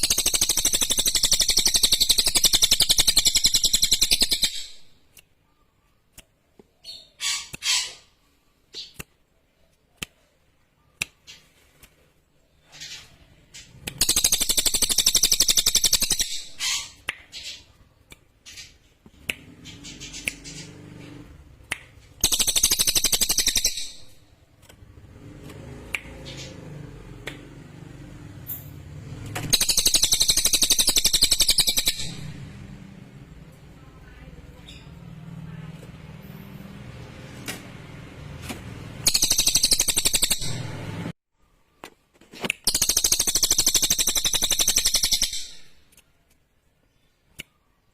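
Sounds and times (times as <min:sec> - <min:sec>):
bird singing high-pitched trills: 0:00.0 - 0:04.9, 0:14.0 - 0:17.0, 0:22.2 - 0:24.2, 0:29.5 - 0:32.3, 0:39.0 - 0:40.8, 0:42.7 - 0:45.8.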